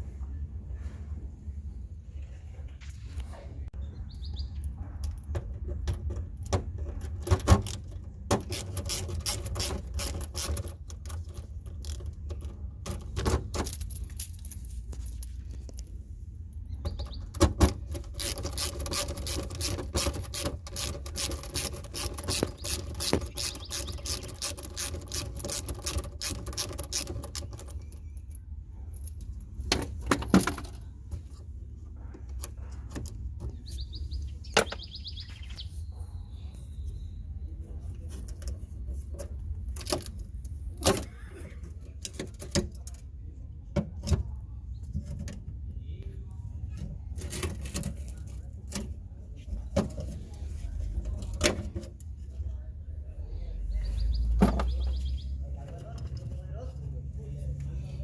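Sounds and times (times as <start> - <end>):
hard parts clicking and clinking: 5.0 - 15.9, 16.9 - 33.6
rapid rattling: 17.1 - 28.1.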